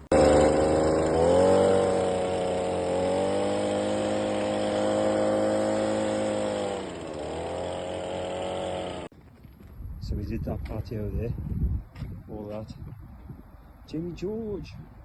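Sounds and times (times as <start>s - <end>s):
pressure washer engine running: 0.0s - 9.1s.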